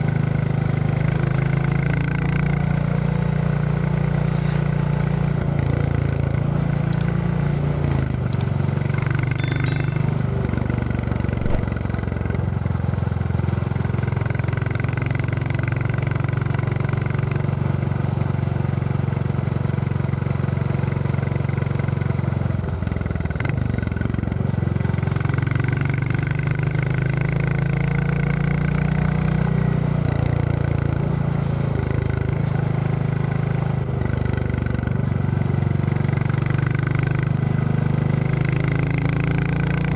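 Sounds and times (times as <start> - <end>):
motorcycle engine thumping: 11.4 - 11.8.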